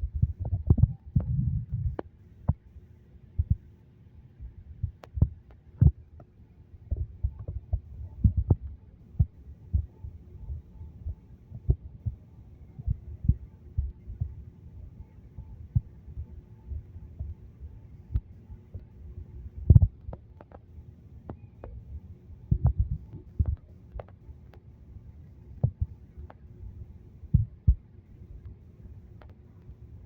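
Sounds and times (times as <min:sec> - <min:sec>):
wind buffeting microphone: 0:00.0 - 0:02.0
faint steady hum: 0:00.0 - 0:30.0.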